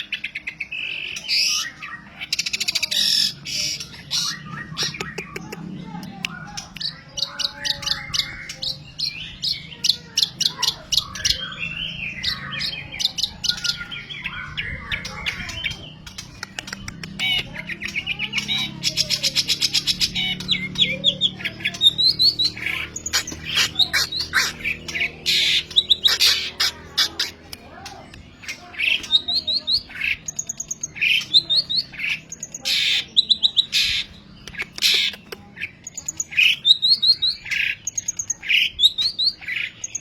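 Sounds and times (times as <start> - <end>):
shrike singing mimicking song: 0.7 - 39.9.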